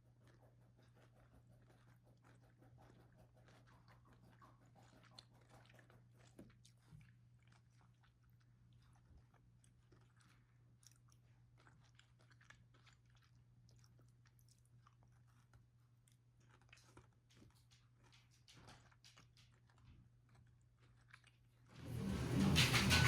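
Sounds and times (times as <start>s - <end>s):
person chewing and crunching: 5.1s - 17.5s.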